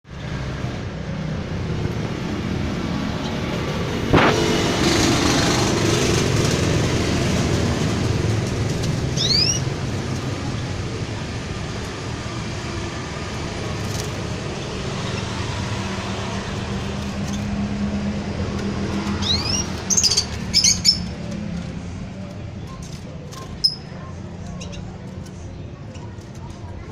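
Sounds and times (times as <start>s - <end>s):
low rumble of distant traffic: 0.0s - 26.9s
canary chirping: 8.1s - 12.0s, 12.6s - 17.5s, 18.8s - 21.4s, 22.6s - 25.2s.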